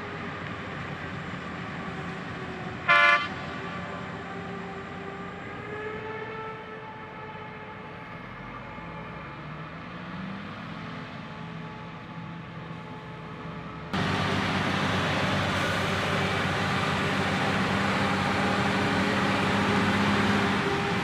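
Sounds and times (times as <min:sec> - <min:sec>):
heavy vehicle engines running: 0:00.0 - 0:21.0
vehicle horn toot: 0:02.9 - 0:03.3.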